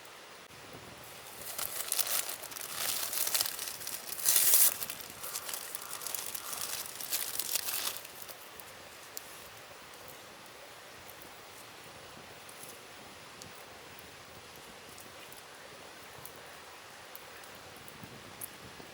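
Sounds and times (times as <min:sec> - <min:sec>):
crinkling of thin crackly material: 0:01.0 - 0:10.2.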